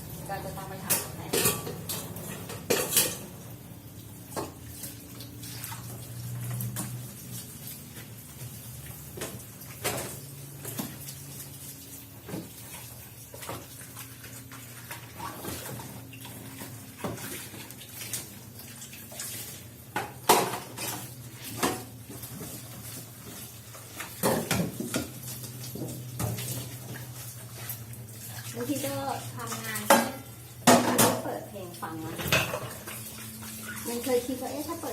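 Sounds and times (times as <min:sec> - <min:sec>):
dishes and cutlery clattering: 0:00.8 - 0:03.4, 0:29.6 - 0:31.3, 0:32.2 - 0:32.9.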